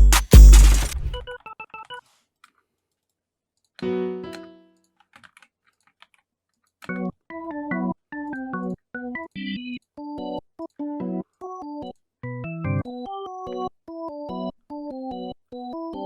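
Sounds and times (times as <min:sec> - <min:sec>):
electric piano chords: 0:03.8 - 0:04.7.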